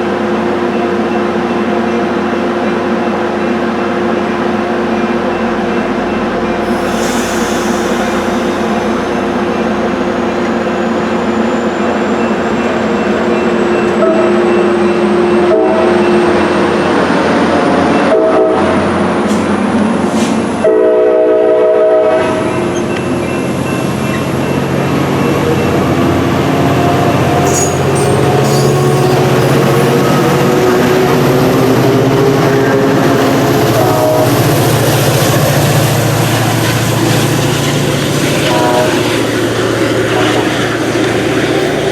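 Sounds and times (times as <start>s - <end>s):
train rail rumble: 0.0s - 41.9s
train air horn: 15.5s - 16.0s, 18.1s - 18.8s, 20.6s - 22.5s, 32.2s - 34.6s, 38.3s - 41.9s.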